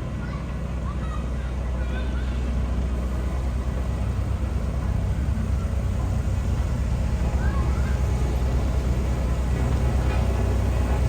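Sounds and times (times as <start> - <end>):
heavy machinery diesel engine running: 0.0 - 11.0.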